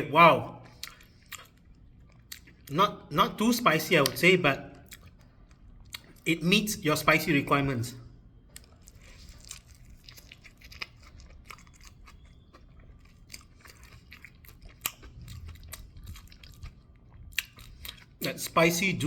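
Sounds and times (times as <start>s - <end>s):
crunchy chewing: 0.6s - 2.7s, 8.5s - 18.3s.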